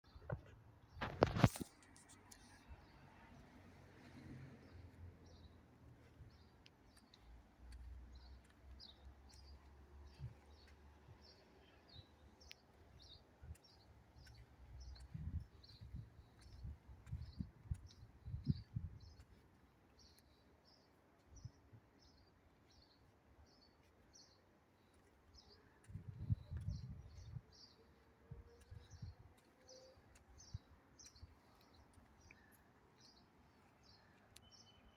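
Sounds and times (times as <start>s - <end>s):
faint bird chirping: 4.7s - 34.9s
bird chirping: 20.0s - 34.9s.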